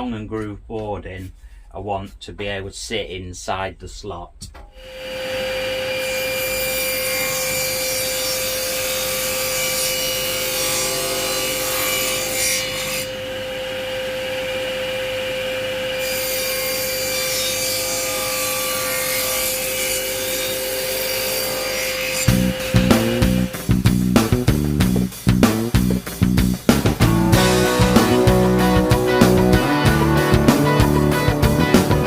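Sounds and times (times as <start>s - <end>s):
table saw whine: 4.8s - 23.7s
saw cutting wood hiss: 15.9s - 24.5s.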